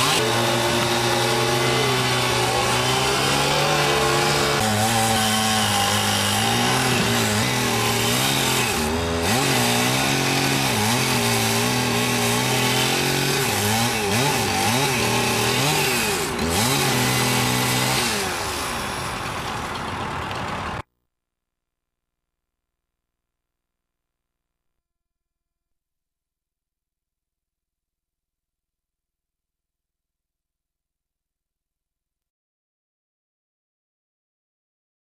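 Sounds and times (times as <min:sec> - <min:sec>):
engine running at high speed: 0:00.0 - 0:20.8.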